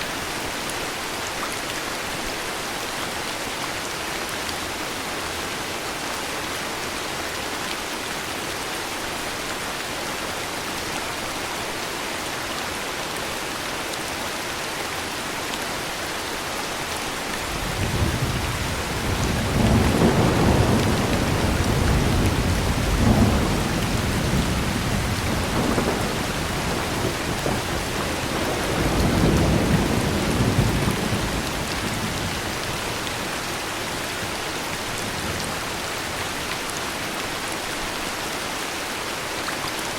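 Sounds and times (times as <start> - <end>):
heavy rain: 0.0 - 39.9
rolling thunder rumble: 17.5 - 32.8.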